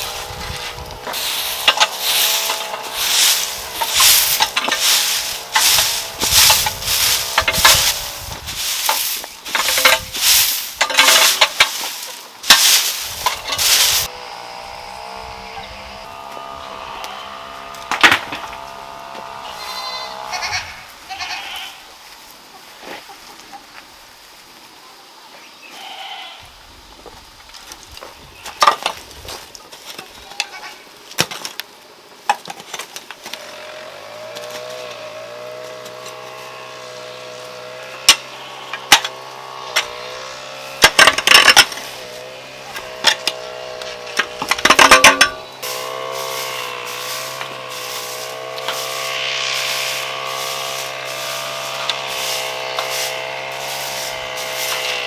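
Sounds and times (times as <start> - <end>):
sharp knocks and scraping clicks: 0.0 - 8.0, 8.8 - 14.1, 17.0 - 19.3, 38.0 - 40.0, 40.7 - 55.0
goats bleating: 16.0 - 21.9, 25.8 - 26.4, 30.2 - 30.8.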